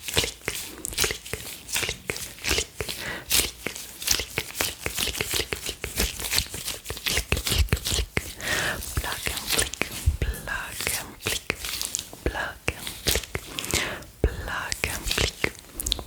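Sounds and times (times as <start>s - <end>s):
gloves rubbing and crinkling: 0.0s - 16.0s
wet mouth clicks and pops: 9.4s - 10.4s, 11.2s - 16.0s.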